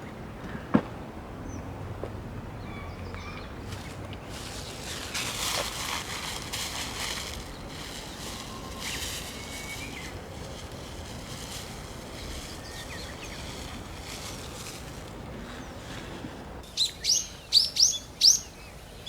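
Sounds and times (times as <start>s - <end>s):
low wind rumble: 0.0s - 19.0s
rustling hiss: 3.7s - 16.7s.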